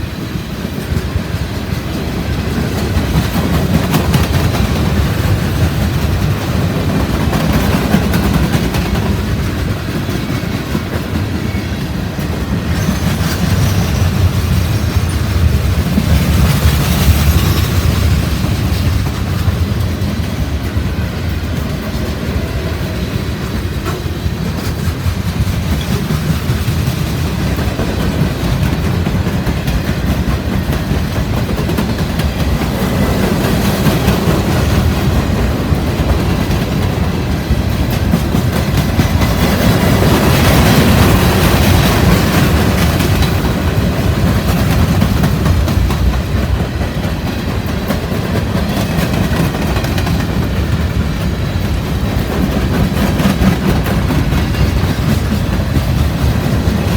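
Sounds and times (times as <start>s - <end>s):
freight train cars rolling past: 0.0s - 56.9s
wheels clattering over rail joints: 23.4s - 56.9s.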